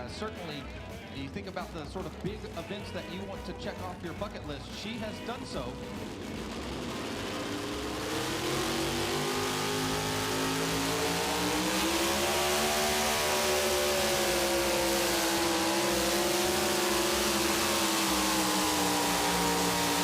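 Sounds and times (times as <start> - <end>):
truck engine screaming at high revs: 5.2 - 20.0.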